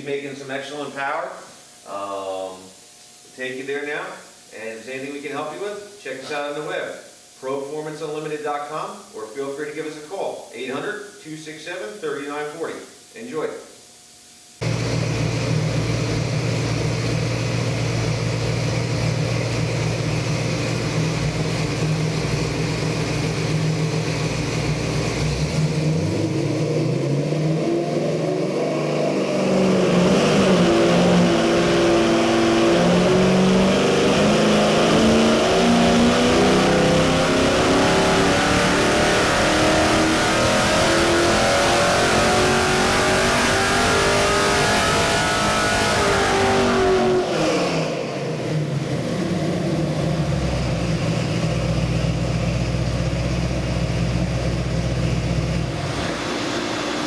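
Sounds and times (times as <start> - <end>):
engine revving on dyno: 14.6 - 57.0.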